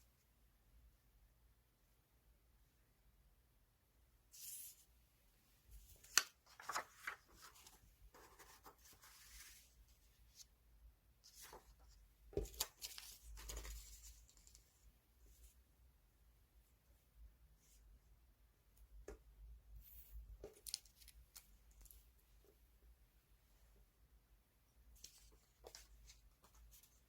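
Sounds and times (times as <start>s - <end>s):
paper rustling and sliding: 5.8s - 9.8s.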